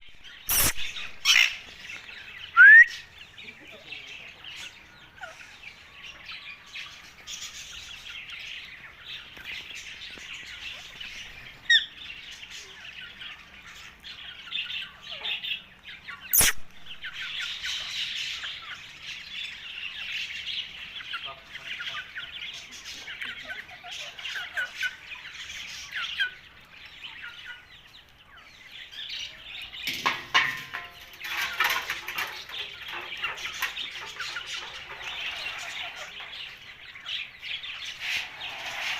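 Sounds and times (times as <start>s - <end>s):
sharp click: 0.5s - 0.9s, 16.4s - 16.8s
parakeet chattering: 0.5s - 1.6s.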